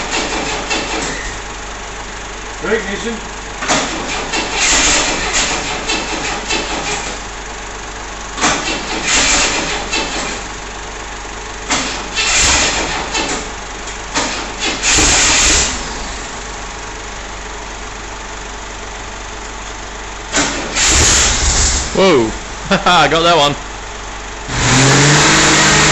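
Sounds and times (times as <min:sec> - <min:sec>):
engine cranking and firing: 0:00.0 - 0:01.6, 0:03.5 - 0:07.6, 0:08.2 - 0:10.8, 0:11.5 - 0:16.8, 0:19.4 - 0:25.9.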